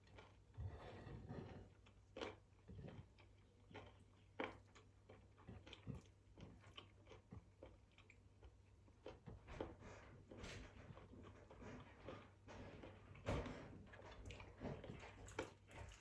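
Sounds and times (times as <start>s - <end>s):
person chewing: 2.2s - 9.3s.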